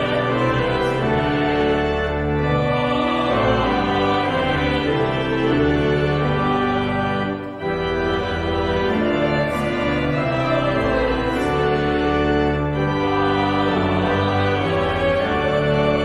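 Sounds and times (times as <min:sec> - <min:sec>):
organ playing a hymn: 0:00.0 - 0:16.0.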